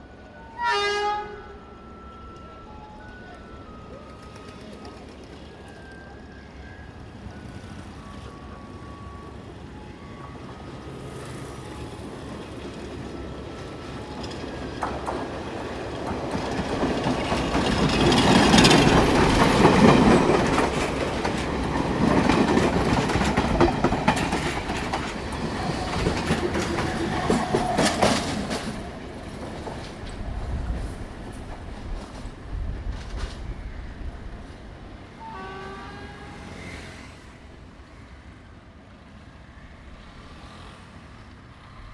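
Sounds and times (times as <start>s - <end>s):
train wheels clacking: 14.1s - 33.5s.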